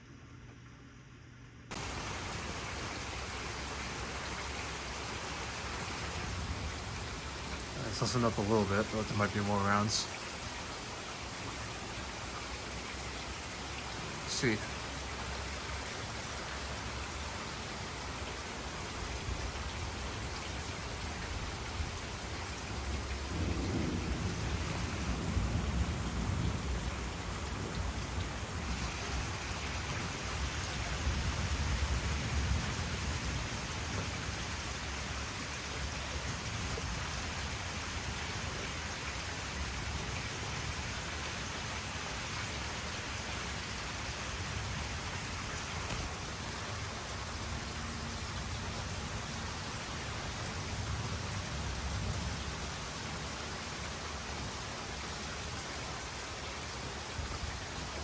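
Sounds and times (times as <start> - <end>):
heavy rain: 1.7 - 58.0
rolling thunder: 22.7 - 34.4.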